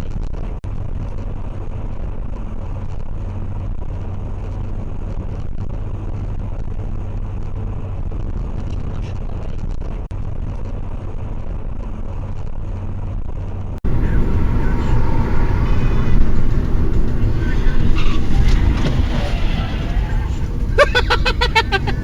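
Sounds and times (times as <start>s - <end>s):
car road and engine noise: 13.8s - 22.0s
constant low hum: 13.8s - 22.0s.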